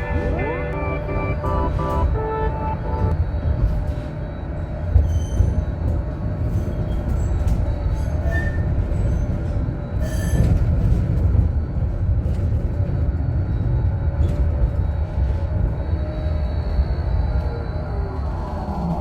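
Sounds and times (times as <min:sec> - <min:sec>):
tram wheels rumbling on track: 0:00.0 - 0:19.0.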